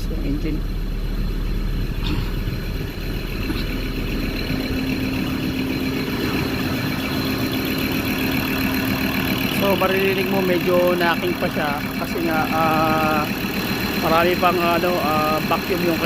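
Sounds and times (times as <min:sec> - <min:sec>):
diesel engine idling with knock: 0:00.0 - 0:16.0
steady hum: 0:00.0 - 0:16.0.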